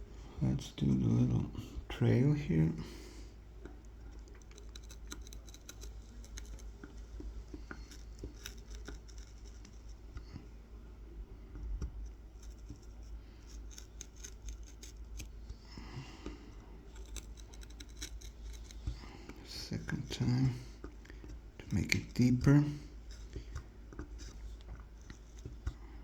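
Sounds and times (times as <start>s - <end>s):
knife point scratching wood: 4.1s - 10.4s, 11.6s - 26.0s.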